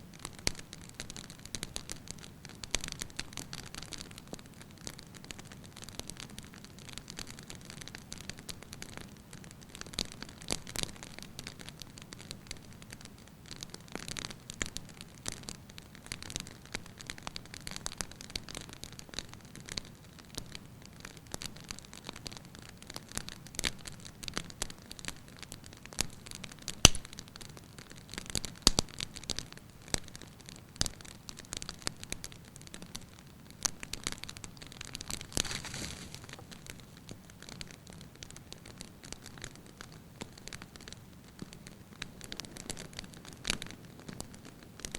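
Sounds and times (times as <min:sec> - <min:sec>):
wood fire crackling: 0:00.0 - 0:44.9
logs popping: 0:26.6 - 0:27.2, 0:33.9 - 0:39.4.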